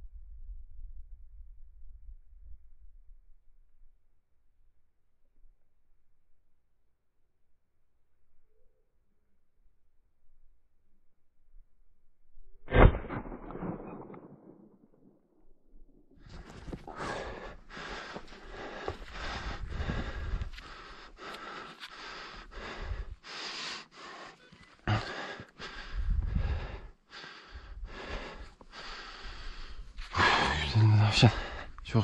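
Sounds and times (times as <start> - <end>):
person panting heavily: 16.3 - 31.8.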